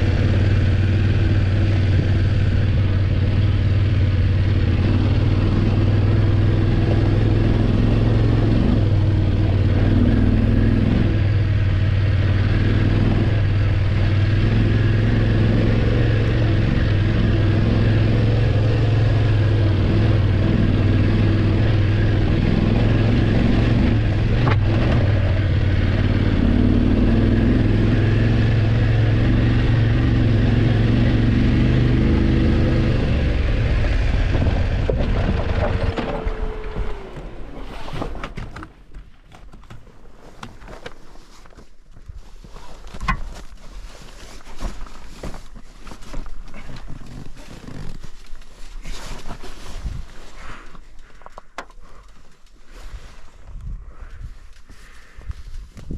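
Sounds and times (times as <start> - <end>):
motorcycle engine running: 0.0 - 37.5.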